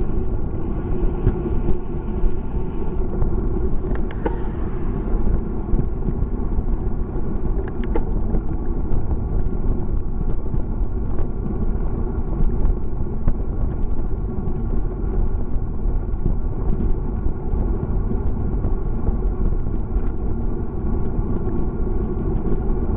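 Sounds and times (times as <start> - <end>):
bicycle road rumble: 0.0 - 22.9
small ticks and rattles: 5.2 - 22.9.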